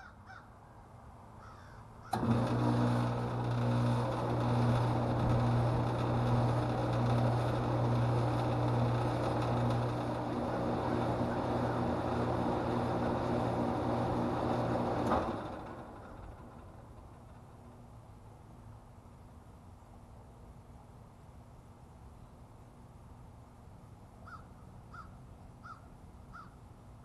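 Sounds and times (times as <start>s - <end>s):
outdoor fan rushing: 0.9s - 27.0s
compressor hum: 2.0s - 18.2s.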